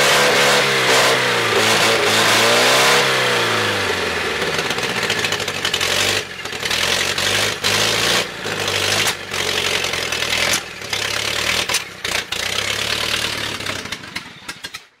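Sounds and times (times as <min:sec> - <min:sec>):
car engine running loudly: 0:00.0 - 0:14.8.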